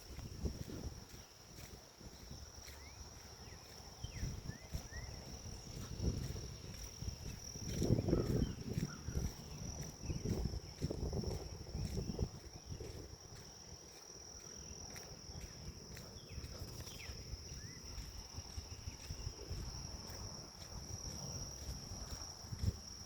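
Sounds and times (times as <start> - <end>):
low wind rumble: 0.0 - 14.0, 15.2 - 23.0
insects trilling: 0.0 - 23.0.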